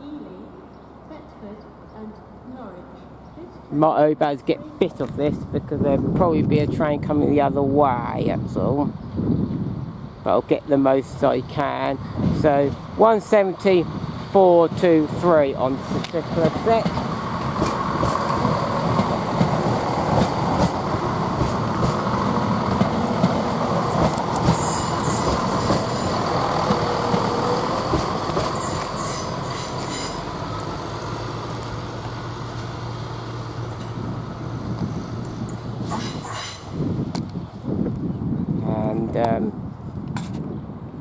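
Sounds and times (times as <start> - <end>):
train low hum: 0.0 - 41.0
train wheels clattering over rails: 14.7 - 32.8, 35.2 - 36.8
high-pitched wheel squeals: 28.6 - 30.3.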